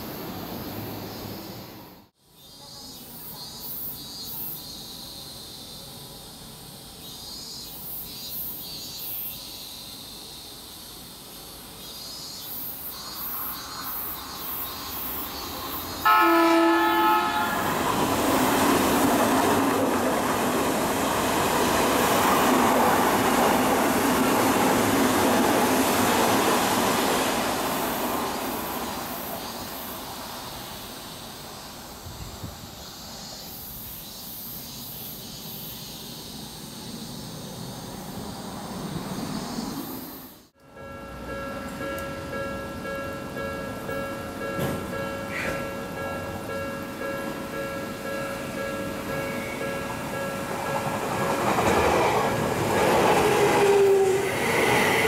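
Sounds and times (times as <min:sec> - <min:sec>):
train rushing past: 0:12.9 - 0:33.5, 0:36.2 - 0:55.0
train horn blast: 0:16.0 - 0:18.0, 0:49.3 - 0:49.7.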